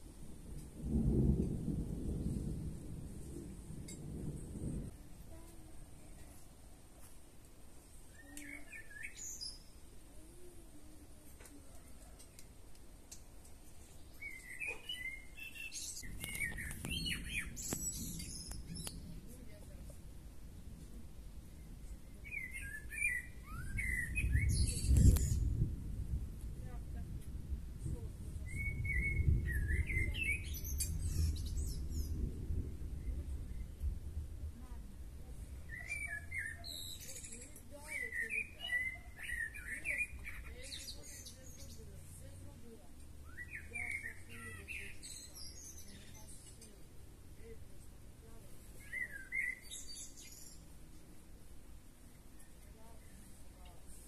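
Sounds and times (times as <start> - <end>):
low rumble: 0.0 - 5.3, 23.4 - 35.8
songbirds chirping: 0.0 - 54.0.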